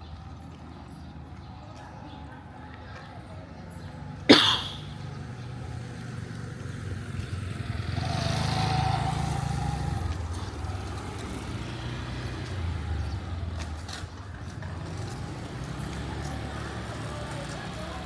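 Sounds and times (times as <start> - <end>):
low rumble of traffic engines: 0.0 - 18.0
vehicle passing close by: 4.8 - 18.0.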